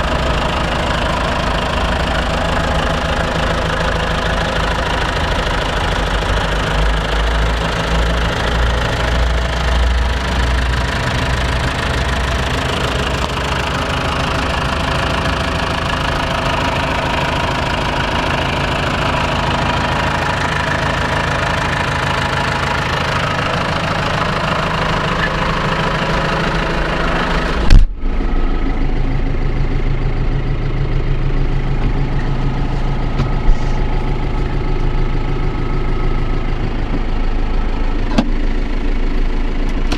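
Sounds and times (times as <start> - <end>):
tractor diesel engine idling: 0.0 - 39.9
loud thump: 27.7 - 28.0.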